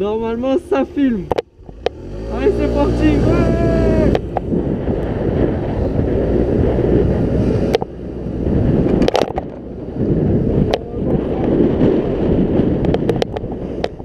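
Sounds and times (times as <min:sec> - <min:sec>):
wind rushing over microphone: 0:00.0 - 0:14.0
scooter engine running: 0:00.3 - 0:10.7.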